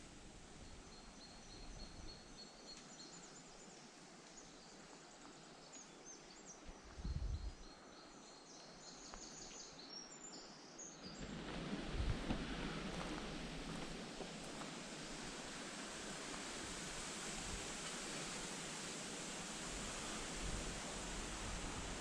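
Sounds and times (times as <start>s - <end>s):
outdoor hiss: 0.0s - 22.0s
low rumble: 11.4s - 15.3s.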